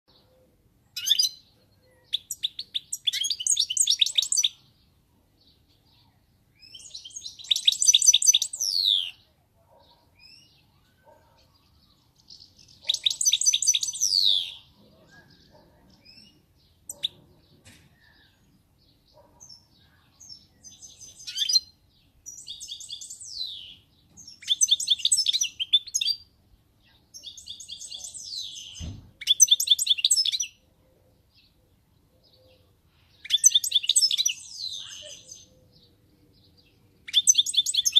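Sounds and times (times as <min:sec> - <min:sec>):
goldfinch twittering song: 0:01.0 - 0:04.6, 0:06.6 - 0:09.2, 0:12.2 - 0:14.7, 0:20.3 - 0:26.3
low thump: 0:28.8 - 0:29.2.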